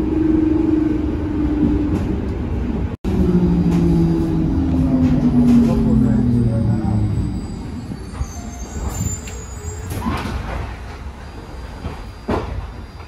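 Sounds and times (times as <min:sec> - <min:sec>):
train wheels rumbling: 0:00.0 - 0:13.0
wheel squeal: 0:06.8 - 0:10.5.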